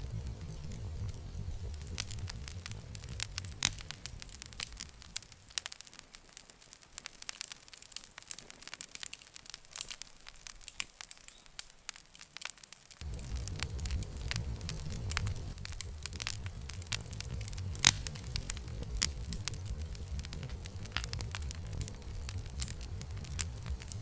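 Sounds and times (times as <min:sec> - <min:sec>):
low rush of flame: 0:00.0 - 0:07.4, 0:13.0 - 0:24.0
campfire crackling and popping: 0:00.0 - 0:24.0.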